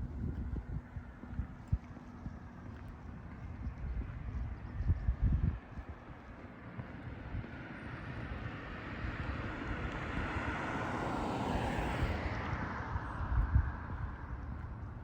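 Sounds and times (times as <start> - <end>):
vehicle passing: 5.5 - 15.0.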